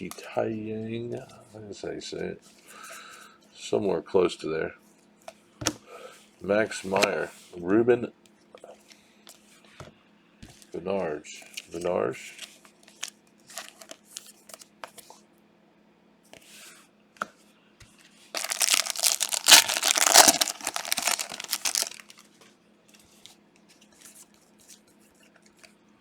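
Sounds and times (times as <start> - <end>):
plastic wrapper tearing and crinkling: 13.6 - 14.0, 18.4 - 22.2.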